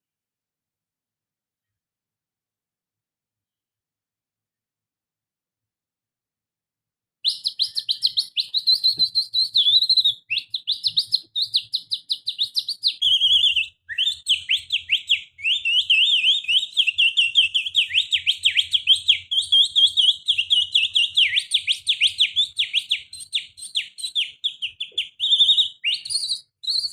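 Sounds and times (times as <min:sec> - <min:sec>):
person whistling canary song: 0:07.2 - 0:26.9.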